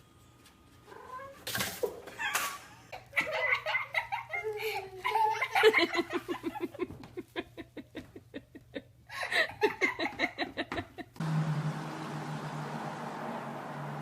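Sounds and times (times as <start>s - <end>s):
steady hiss with low hum: 0.0s - 11.2s
person laughing: 2.2s - 11.2s.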